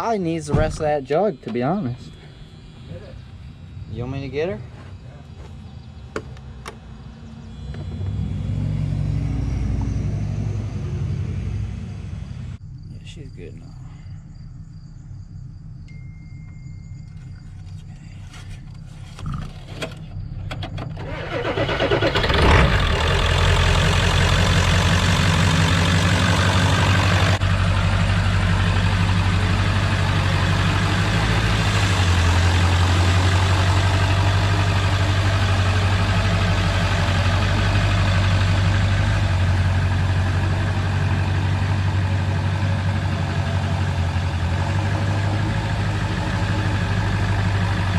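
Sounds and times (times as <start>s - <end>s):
diesel engine cranking and idling: 0.0s - 13.3s, 16.5s - 47.9s
low rumble: 0.0s - 19.2s.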